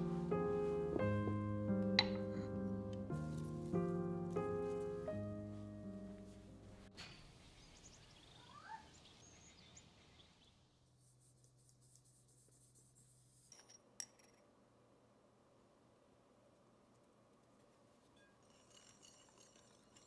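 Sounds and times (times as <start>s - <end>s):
faint bird chirps: 7.3s - 10.6s.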